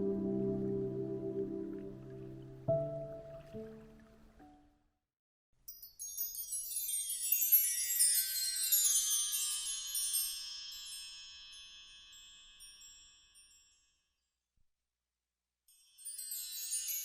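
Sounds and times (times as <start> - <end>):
shimmering high chimes: 5.7 - 14.0, 15.7 - 17.0.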